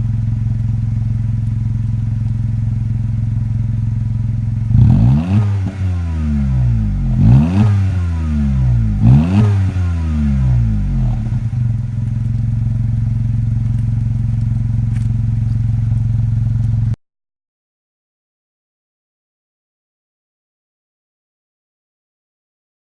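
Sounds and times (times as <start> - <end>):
car engine revving and idling: 0.0 - 17.0.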